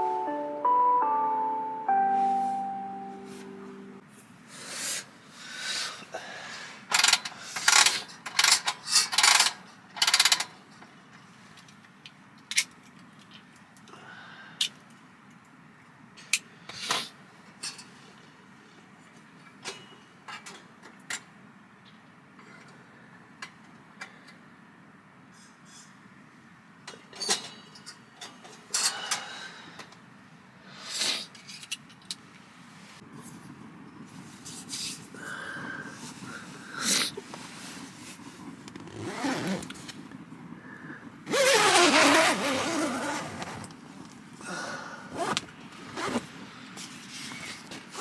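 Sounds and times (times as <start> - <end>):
camping gear clicks and rustles: 37.3 - 40.2.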